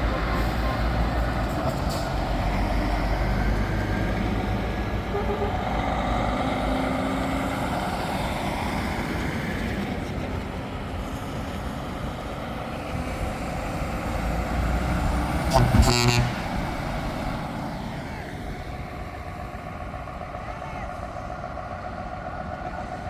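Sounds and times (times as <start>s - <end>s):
truck diesel engine passing: 0.0s - 23.0s.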